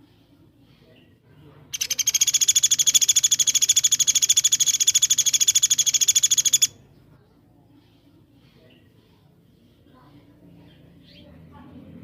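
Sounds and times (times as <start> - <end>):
songbird fast trill: 1.7 - 6.8.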